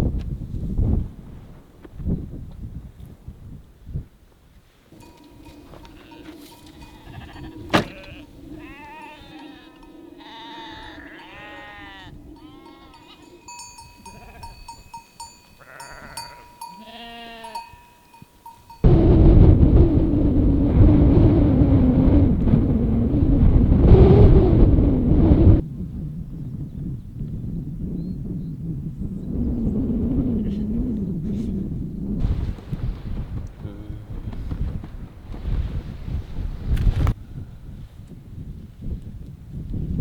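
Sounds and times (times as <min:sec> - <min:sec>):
wind buffeting microphone: 0:00.0 - 0:40.0
sheep or goats bleating: 0:05.0 - 0:17.8.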